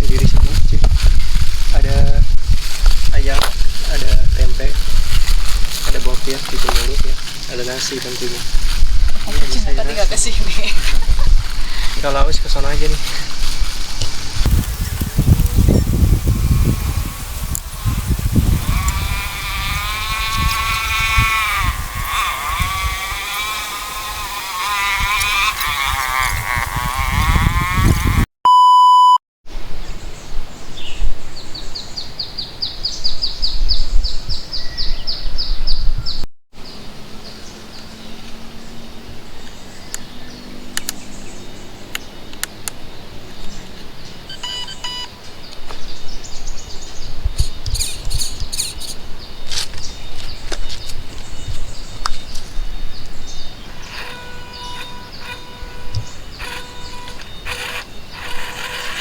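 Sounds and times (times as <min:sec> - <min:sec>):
outdoor background noise: 0:00.0 - 0:28.3, 0:36.6 - 0:59.0
electronic beep tone: 0:28.5 - 0:29.2, 0:44.3 - 0:45.1.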